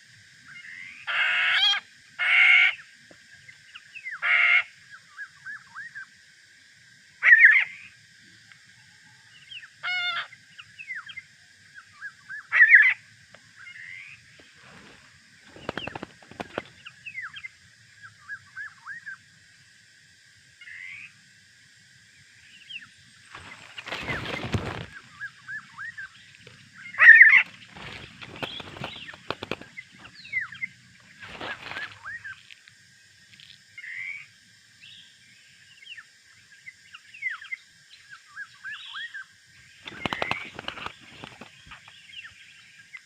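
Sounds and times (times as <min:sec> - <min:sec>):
harsh bird calls: 0:22.7 - 0:32.4, 0:39.8 - 0:42.4
birds whistling: 0:23.8 - 0:32.4, 0:39.8 - 0:42.6.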